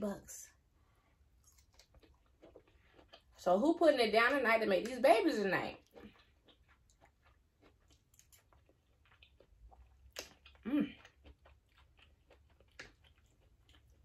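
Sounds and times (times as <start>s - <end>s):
person chewing food: 1.0s - 3.4s, 5.7s - 14.0s
wet mouth clicks and smacks: 9.1s - 10.6s.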